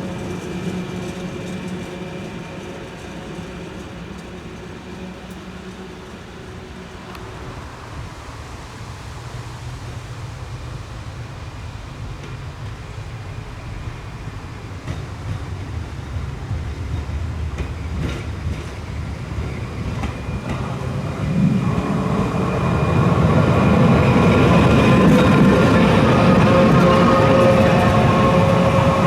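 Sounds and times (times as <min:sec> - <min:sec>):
rail clicks: 0:00.0 - 0:08.0, 0:12.1 - 0:29.0
tram running on rails: 0:00.0 - 0:29.0
high whine: 0:20.5 - 0:29.0.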